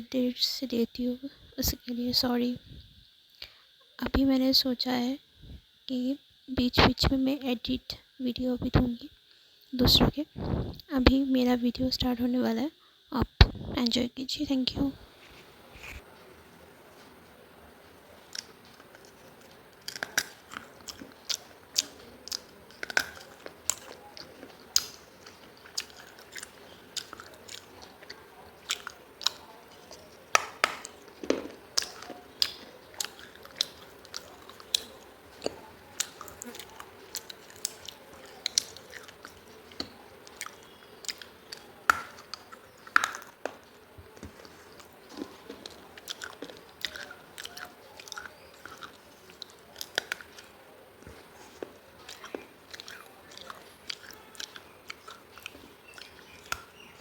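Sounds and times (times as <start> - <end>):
crunching hard baked clay: 16.9 - 57.0.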